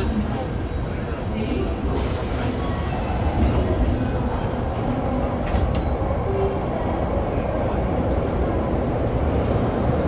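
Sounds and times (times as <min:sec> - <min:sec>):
subway train wheels rumbling on rail: 0:00.0 - 0:10.0.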